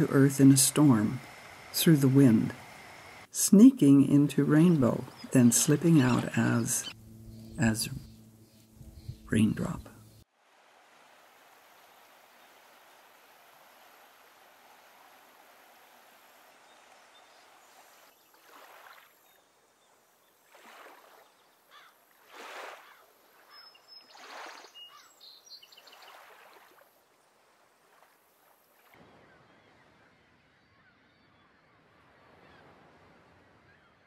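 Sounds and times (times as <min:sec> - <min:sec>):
bird chirps: 0:04.7 - 0:10.2.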